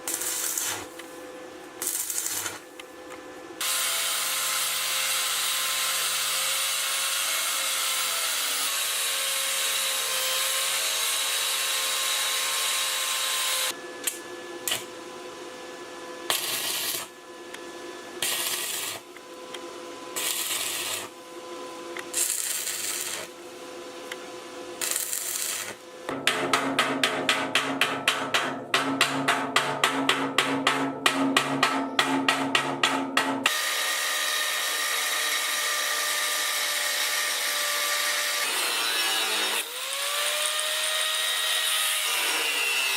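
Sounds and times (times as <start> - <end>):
power tool hissing: 0.0 - 1.0, 1.8 - 2.6, 18.2 - 19.0, 20.2 - 21.2, 22.0 - 23.4, 24.8 - 25.8.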